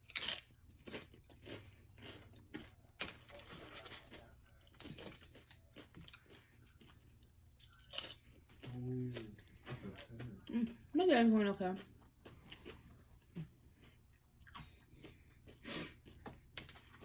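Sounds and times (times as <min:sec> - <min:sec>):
person crunching tortilla chips: 0:00.0 - 0:10.3.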